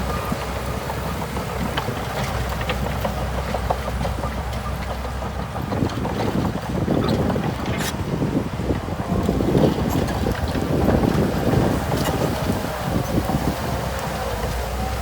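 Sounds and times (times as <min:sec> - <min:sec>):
bulldozer diesel engine running: 0:00.0 - 0:15.0
wind on microphone: 0:05.7 - 0:15.0.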